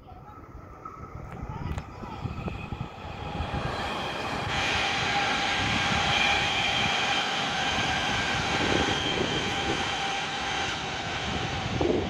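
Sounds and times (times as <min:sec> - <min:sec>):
electric train running: 0:01.5 - 0:12.0.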